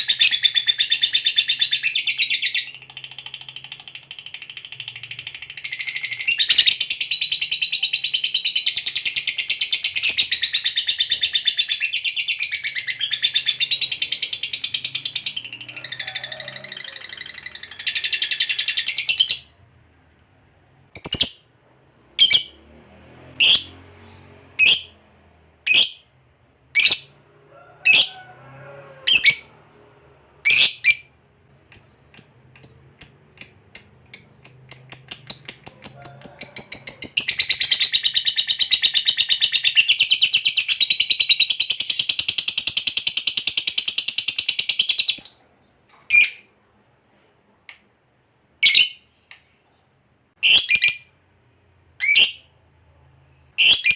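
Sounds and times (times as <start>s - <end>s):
lovebird rapid trill: 0.0s - 11.1s
lovebird chirps: 0.0s - 19.5s, 21.0s - 21.5s, 30.4s - 46.5s.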